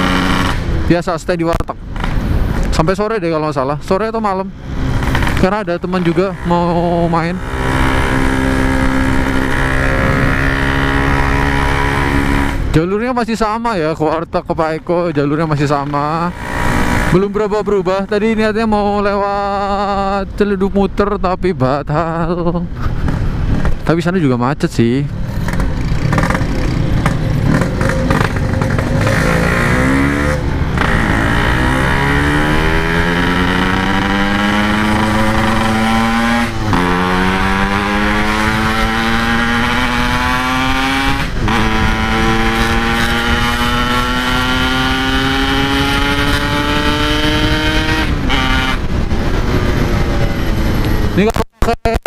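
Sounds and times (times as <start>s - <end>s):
two-stroke engine accelerating: 0.0s - 0.8s, 4.8s - 12.7s, 15.9s - 17.4s, 25.3s - 51.2s
wind and road noise: 0.0s - 52.0s.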